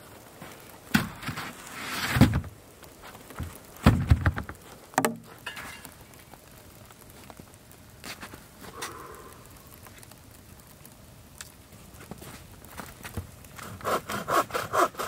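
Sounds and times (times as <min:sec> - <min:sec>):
rustling: 0:00.0 - 0:15.0.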